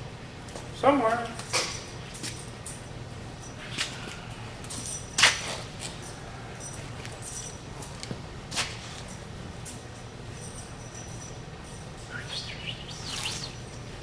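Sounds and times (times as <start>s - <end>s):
hand tools clinking and clattering: 1.4s - 14.0s
low steady hum: 9.1s - 14.0s.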